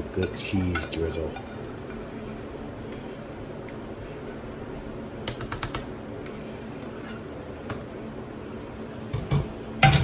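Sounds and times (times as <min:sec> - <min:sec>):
steady background hum: 0:00.0 - 0:10.0
utensils clinking against dishes: 0:00.2 - 0:01.6, 0:09.2 - 0:10.0.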